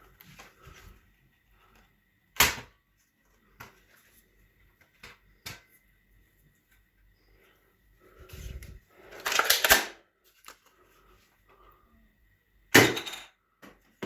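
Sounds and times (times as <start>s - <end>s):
toy gun rattling: 9.1s - 10.0s.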